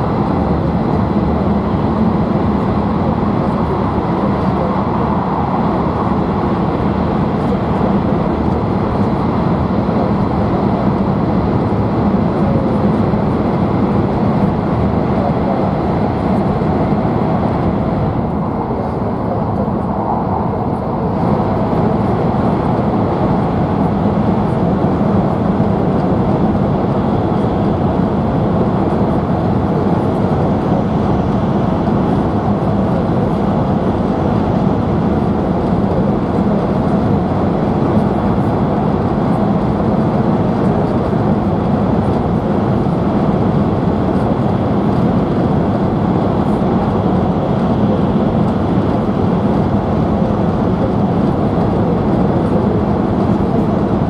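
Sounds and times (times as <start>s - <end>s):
air rushing past train: 0.0s - 54.0s.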